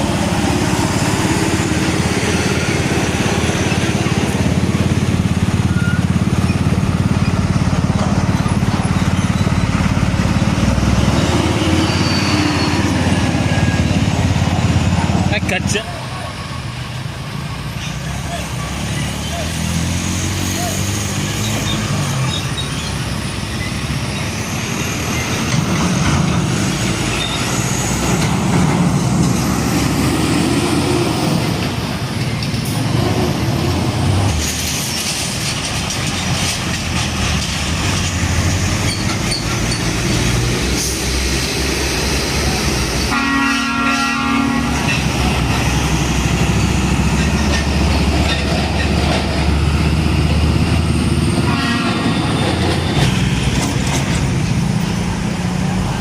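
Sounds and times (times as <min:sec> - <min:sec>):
diesel trucks driving past: 0:00.0 - 0:56.0
truck horn: 0:43.1 - 0:45.1, 0:51.4 - 0:52.5.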